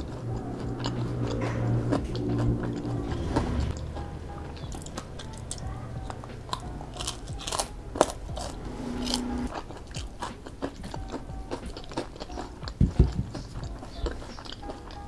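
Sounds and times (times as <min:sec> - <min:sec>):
crunchy food chewing: 0:00.0 - 0:15.0.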